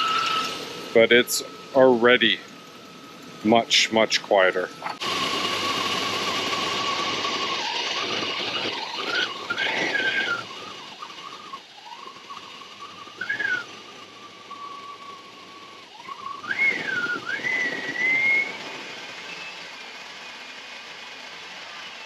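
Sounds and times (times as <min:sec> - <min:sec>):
high whistle of air into engine intake: 0:00.0 - 0:00.6, 0:05.0 - 0:19.8
engine running: 0:00.0 - 0:22.0.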